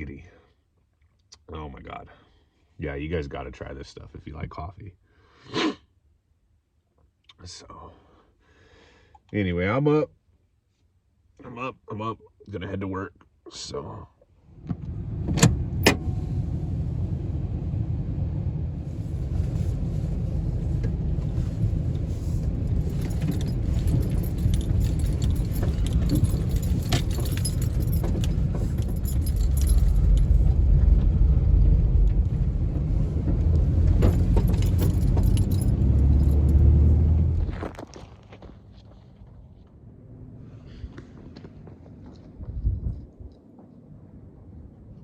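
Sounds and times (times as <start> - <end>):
truck engine and road rumble: 14.4 - 45.0
small rattles and clinks: 21.4 - 30.5, 34.0 - 36.6.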